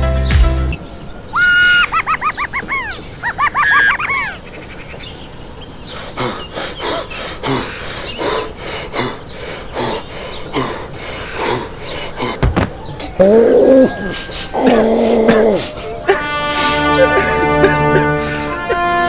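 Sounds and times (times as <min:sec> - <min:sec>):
cartoon giggle: 0:01.7 - 0:04.4, 0:16.1 - 0:19.0.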